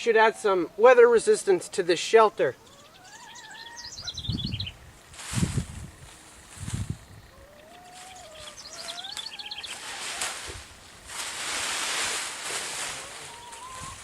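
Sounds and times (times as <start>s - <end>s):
birds singing: 0.0s - 5.1s, 5.8s - 10.2s, 13.1s - 14.0s
loud rustling: 9.7s - 14.0s.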